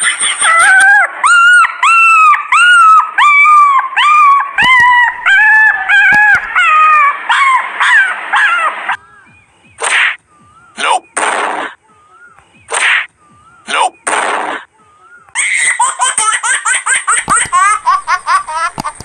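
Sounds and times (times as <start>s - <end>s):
animal yelping: 0.0s - 9.2s.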